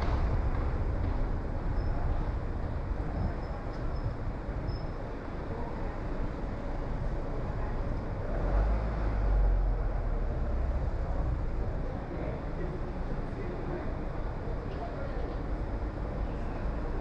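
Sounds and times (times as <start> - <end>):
car tyre and engine rumble: 0.0 - 17.0.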